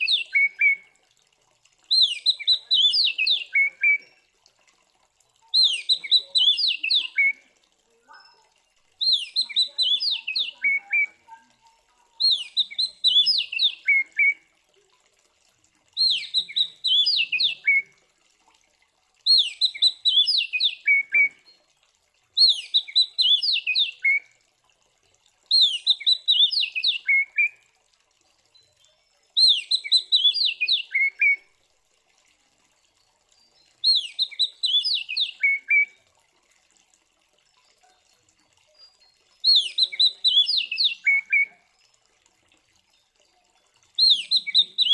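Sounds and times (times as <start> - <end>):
bird singing whistled notes: 1.9 - 4.1, 5.5 - 7.4, 9.0 - 11.2, 12.2 - 14.4, 16.0 - 17.9, 19.3 - 21.6, 22.4 - 24.2, 25.5 - 27.6, 29.4 - 31.4, 33.5 - 36.0, 38.8 - 41.6, 44.0 - 44.9.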